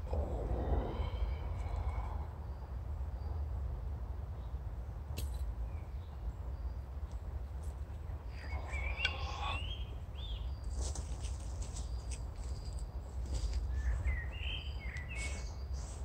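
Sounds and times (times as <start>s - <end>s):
low rumble: 0.0s - 4.0s
faint high bird call: 8.3s - 9.9s
bird warbling: 8.4s - 9.8s.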